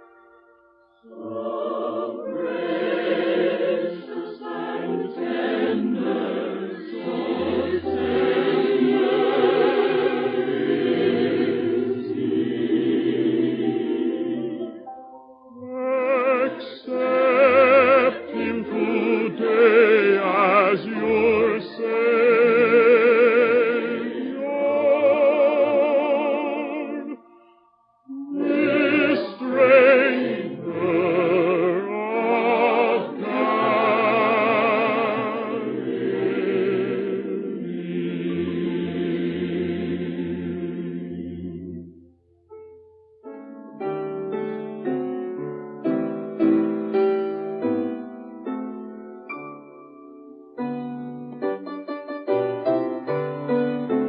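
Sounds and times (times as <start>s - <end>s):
choir singing a hymn: 1.0s - 27.3s, 28.1s - 42.0s.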